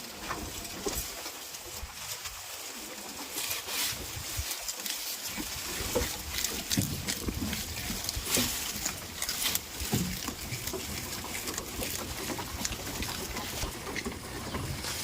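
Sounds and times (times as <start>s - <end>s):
rustling: 0.0s - 15.0s
goats bleating and grunting: 5.4s - 15.0s.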